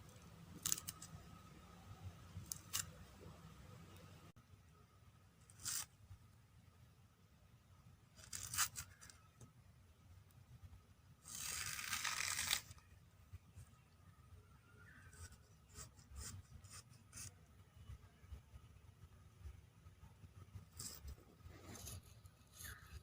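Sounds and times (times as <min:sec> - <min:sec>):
rustling tearing: 0:11.3 - 0:12.8.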